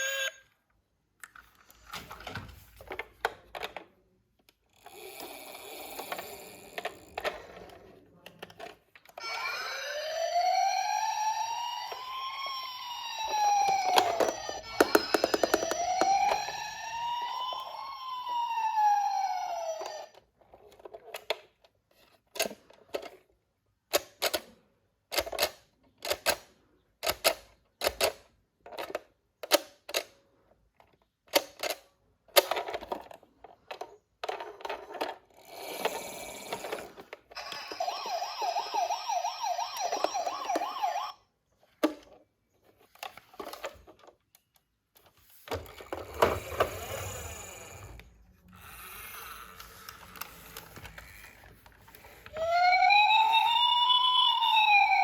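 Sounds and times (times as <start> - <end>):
toy electronic siren wailing: 0.0 - 0.5, 9.2 - 20.3, 35.4 - 41.3, 46.4 - 48.0, 48.6 - 55.0
clicks from handling plastic toy: 48.5 - 52.4.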